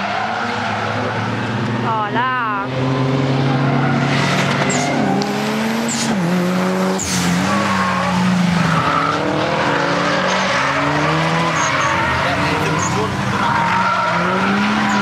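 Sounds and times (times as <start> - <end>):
car engine at high revs: 0.0 - 15.0
tyres squealing: 7.0 - 15.0.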